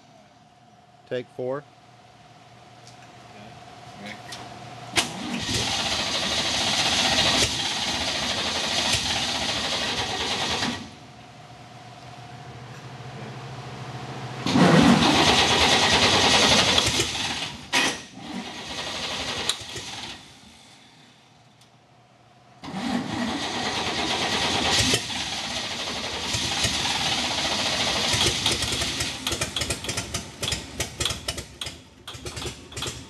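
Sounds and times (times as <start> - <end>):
engine firing and running unevenly: 4.9 - 11.0, 13.0 - 21.0, 22.6 - 33.0.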